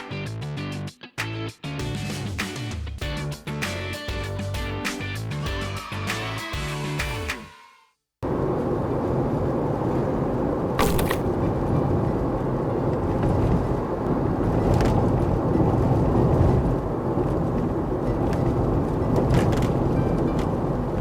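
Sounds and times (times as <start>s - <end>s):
low rumbling outdoor noise: 8.2s - 21.0s.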